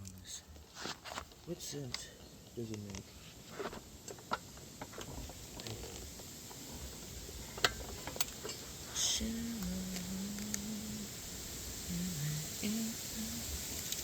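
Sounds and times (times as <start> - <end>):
hand tools and metal parts clicking: 2.7 - 9.0
low hummed tone: 6.8 - 13.9.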